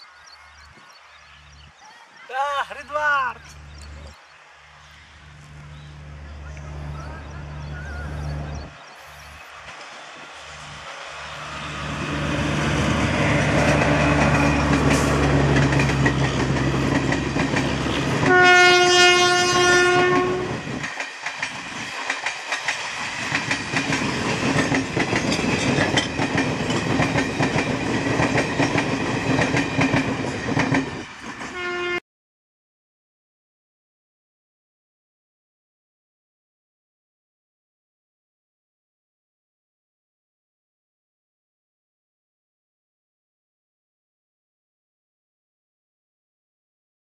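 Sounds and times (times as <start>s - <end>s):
train approaching with low hum: 2.7s - 32.0s
wheels clacking over rail joints: 9.5s - 18.4s, 20.6s - 31.6s
train horn: 18.0s - 20.6s, 31.5s - 32.0s.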